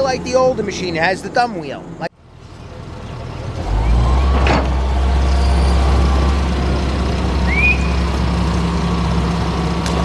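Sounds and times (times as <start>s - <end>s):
excavator diesel engine droning: 1.8s - 10.0s
brief rising squeal: 3.7s - 6.6s.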